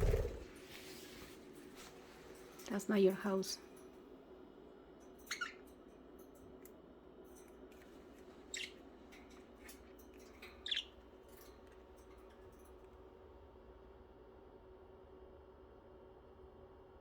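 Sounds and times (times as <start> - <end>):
budgerigars chirping: 10.6 - 10.9.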